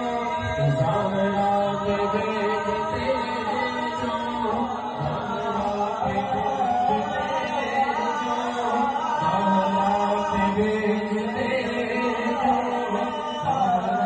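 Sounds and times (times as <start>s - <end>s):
person chanting melodically: 0.0s - 14.0s.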